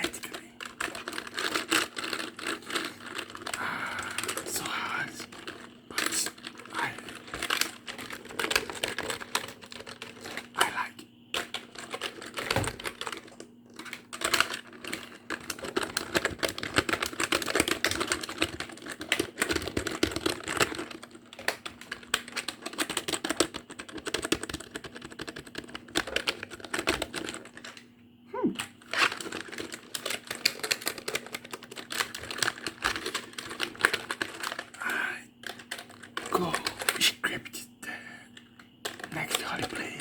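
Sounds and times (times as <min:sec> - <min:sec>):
fast keyboard typing: 0:00.0 - 0:27.8, 0:28.7 - 0:37.1, 0:38.9 - 0:40.0
faint steady hum: 0:00.0 - 0:40.0.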